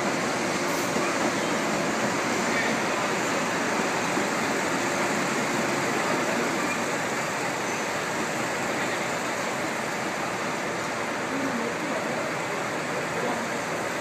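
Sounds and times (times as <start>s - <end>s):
diesel railcar engines running: 0.0s - 14.0s.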